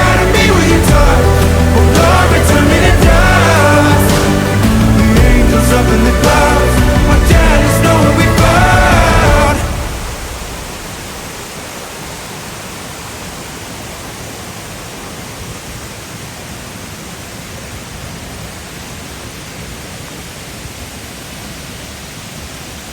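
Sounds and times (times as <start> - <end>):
pop song: 0.0 - 11.4
waterfall rushing: 0.0 - 22.9.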